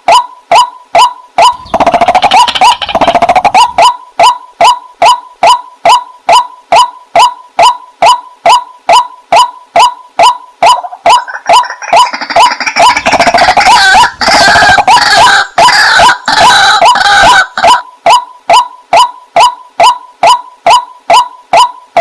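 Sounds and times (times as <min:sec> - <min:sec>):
waterhen calling: 0:01.4 - 0:09.1, 0:09.8 - 0:20.4
chatter of bird calls: 0:01.5 - 0:03.8.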